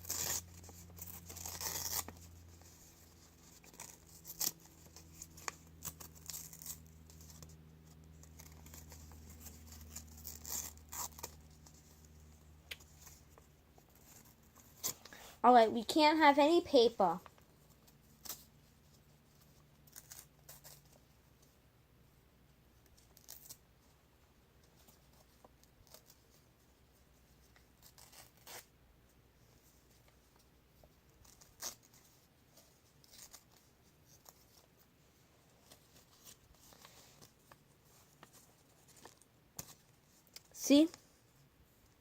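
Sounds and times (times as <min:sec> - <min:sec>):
paper tearing and rustling: 0:00.0 - 0:12.0, 0:19.8 - 0:21.0, 0:27.8 - 0:28.7, 0:31.2 - 0:34.8.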